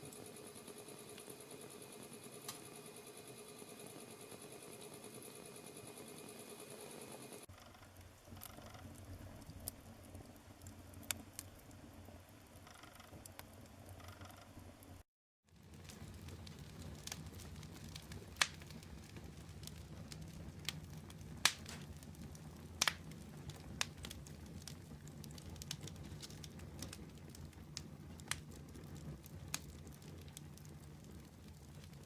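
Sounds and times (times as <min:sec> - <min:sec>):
burning wood crackling and popping: 0:07.5 - 0:15.0, 0:15.6 - 0:32.0
low rumble of flames: 0:07.5 - 0:15.0, 0:15.6 - 0:32.0.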